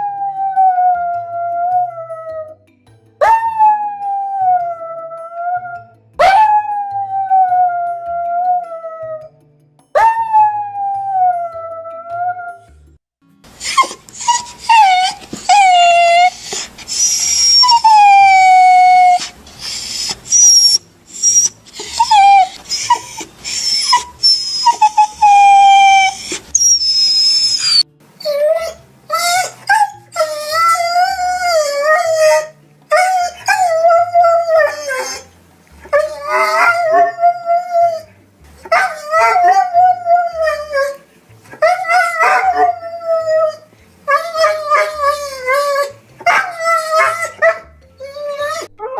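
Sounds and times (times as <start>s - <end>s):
dog howl-like cries: 0.0s - 2.6s, 3.2s - 9.3s, 10.0s - 12.7s, 13.6s - 35.3s, 35.9s - 48.9s
dog whining and crying: 13.6s - 48.9s.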